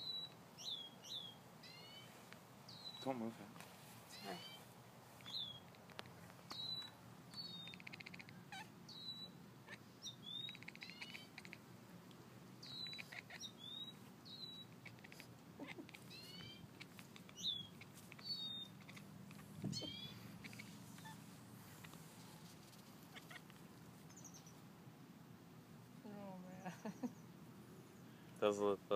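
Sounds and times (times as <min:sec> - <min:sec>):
kitten chirping: 0:05.2 - 0:11.6, 0:12.6 - 0:22.0, 0:22.7 - 0:24.6.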